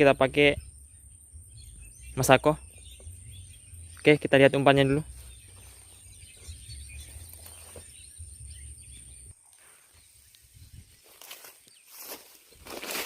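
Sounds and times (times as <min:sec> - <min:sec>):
wind rumble on microphone: 0:00.0 - 0:04.0, 0:05.1 - 0:09.3, 0:10.4 - 0:11.0.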